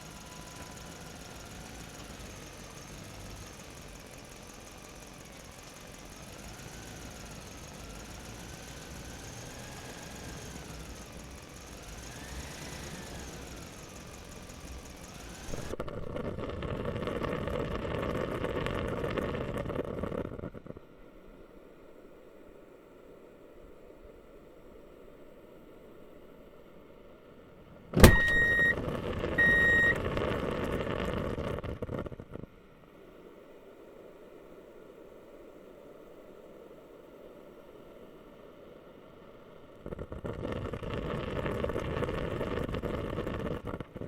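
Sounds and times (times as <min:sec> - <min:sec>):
rough motor running noise: 0:00.0 - 0:20.6, 0:28.0 - 0:32.5, 0:39.8 - 0:44.0
motor whining: 0:28.0 - 0:30.2.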